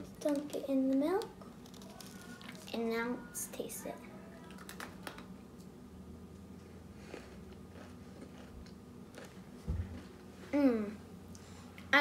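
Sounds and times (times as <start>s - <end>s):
soft chewing: 6.4s - 10.6s.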